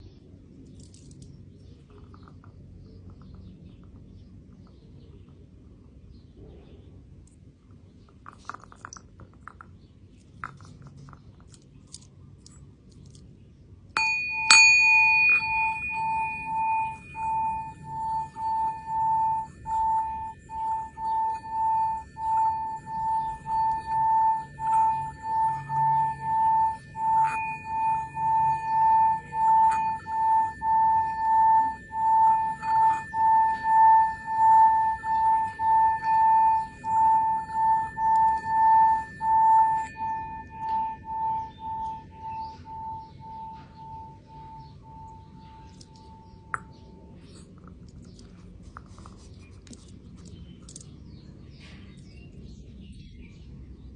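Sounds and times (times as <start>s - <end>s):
singing bowl ringing: 13.9s - 48.3s.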